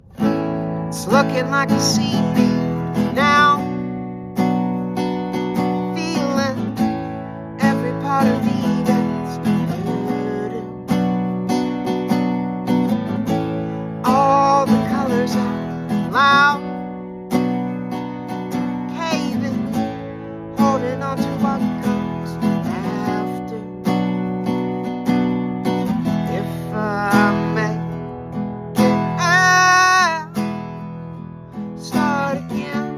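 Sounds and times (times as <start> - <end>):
person singing: 0.0 - 4.0, 5.6 - 7.0, 7.6 - 11.0, 13.3 - 16.8, 18.7 - 20.0, 20.6 - 24.0, 26.2 - 28.0, 28.8 - 30.4, 31.8 - 32.9
strummed acoustic guitar: 0.0 - 32.9.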